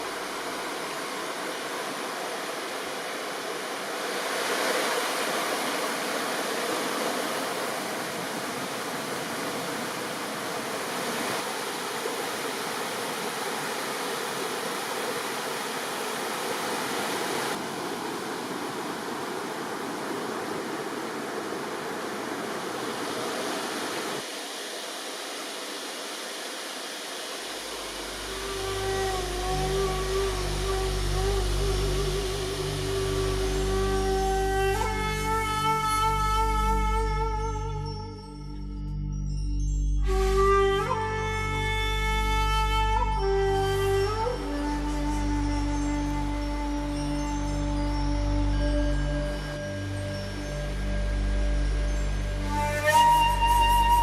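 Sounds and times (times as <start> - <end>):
river water rushing: 0.0 - 38.0, 40.1 - 54.0.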